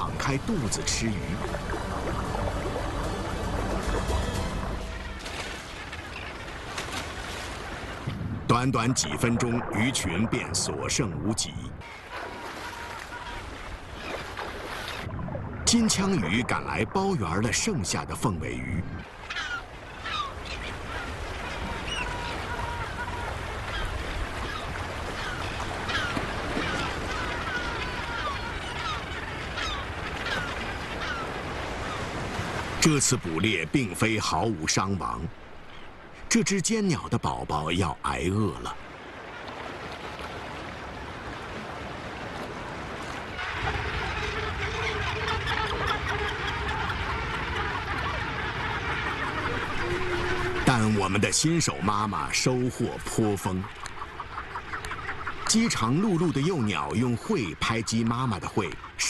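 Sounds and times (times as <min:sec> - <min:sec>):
sea rushing: 0:00.0 - 0:59.0
seabirds calling: 0:00.0 - 0:59.0
wind: 0:00.0 - 0:59.0.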